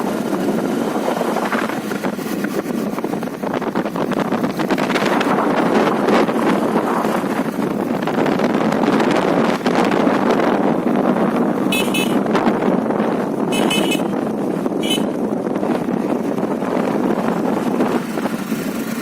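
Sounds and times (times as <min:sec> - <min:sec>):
wind and road noise: 0:00.0 - 0:19.0
high-pitched vehicle horn toots: 0:11.7 - 0:12.3, 0:13.5 - 0:14.2, 0:14.8 - 0:15.2.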